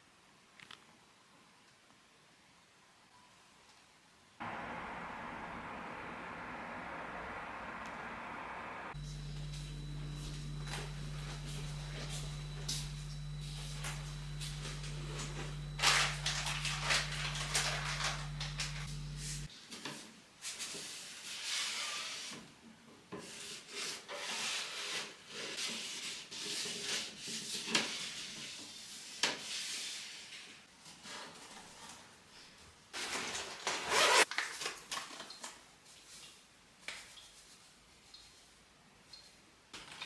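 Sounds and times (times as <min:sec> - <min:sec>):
low steady hum: 0:04.4 - 0:19.5.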